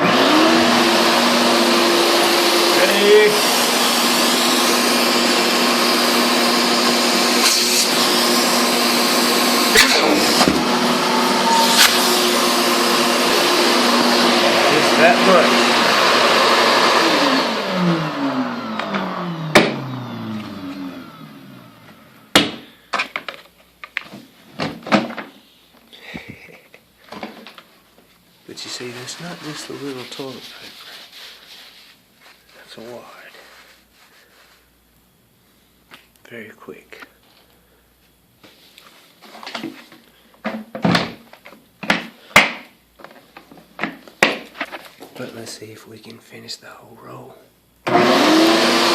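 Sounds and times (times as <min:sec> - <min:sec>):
shop vac motor winding down: 0:00.0 - 0:22.3, 0:47.8 - 0:48.9
rustling scrapes: 0:27.6 - 0:34.8
knocks of objects handled: 0:40.4 - 0:45.2.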